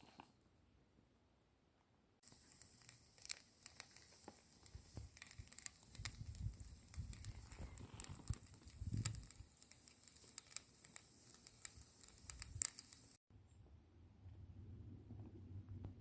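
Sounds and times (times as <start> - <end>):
bonfire crackling: 2.2 - 13.2.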